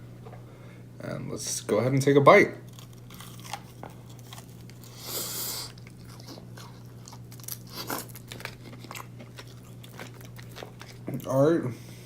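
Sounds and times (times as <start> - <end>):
crunchy chewing: 2.6 - 11.4
biting crispy chicken crunch: 2.7 - 11.1.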